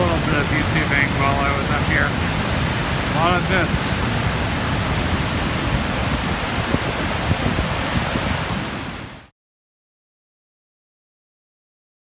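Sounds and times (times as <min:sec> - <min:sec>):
waterfall roaring: 0:00.0 - 0:09.3
wind gusting on microphone: 0:00.0 - 0:09.3.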